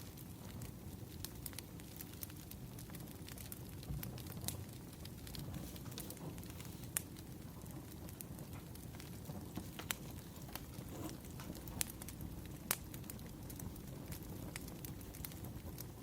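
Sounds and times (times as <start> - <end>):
low hiss of burning wood: 0.0 - 16.0
wood fire crackling: 0.0 - 16.0.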